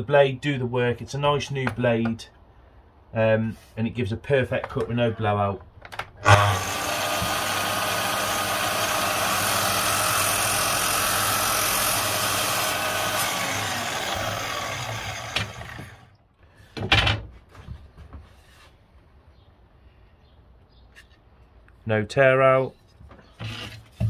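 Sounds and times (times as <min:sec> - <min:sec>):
mitre saw cutting wood: 0:06.2 - 0:16.1.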